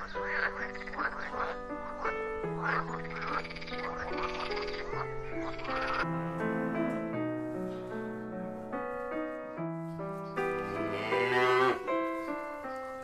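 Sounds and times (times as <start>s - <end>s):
soft piano music: 0.0s - 13.0s
cow mooing: 10.6s - 11.9s.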